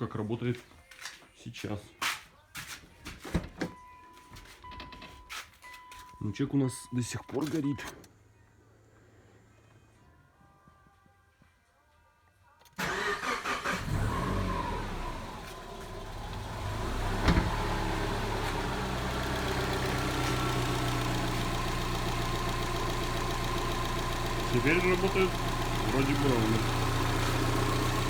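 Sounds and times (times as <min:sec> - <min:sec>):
car engine starting and idling: 0:12.7 - 0:28.0.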